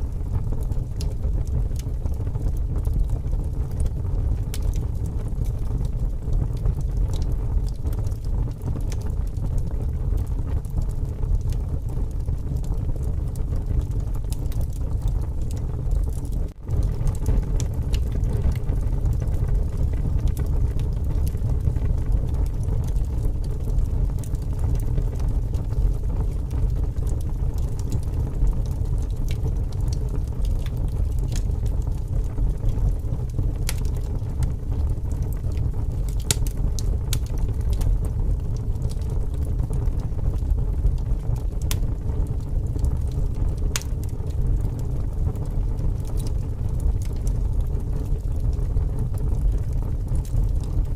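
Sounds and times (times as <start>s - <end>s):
wood fire crackling and popping: 0.0s - 50.9s.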